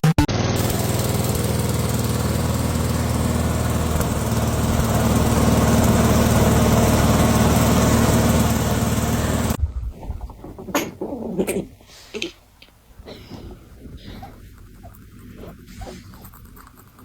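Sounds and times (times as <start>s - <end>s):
motor humming: 0.3s - 10.6s.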